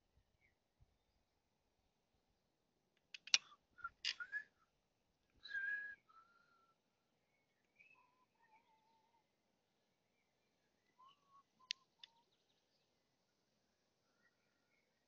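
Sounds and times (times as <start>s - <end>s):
bird chirps: 3.2s - 4.6s, 5.4s - 13.0s
whistled bird notes: 3.3s - 4.7s, 5.4s - 9.2s, 10.8s - 12.8s.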